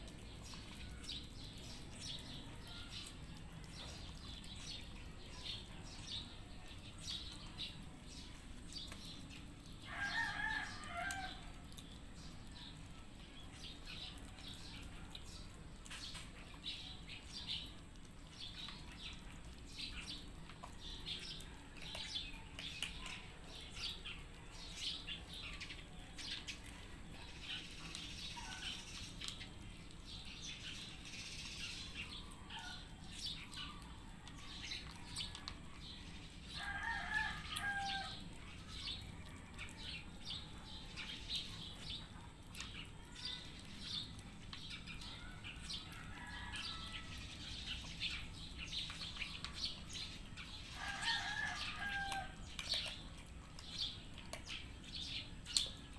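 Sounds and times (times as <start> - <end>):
cats crunching food: 0.0 - 55.9.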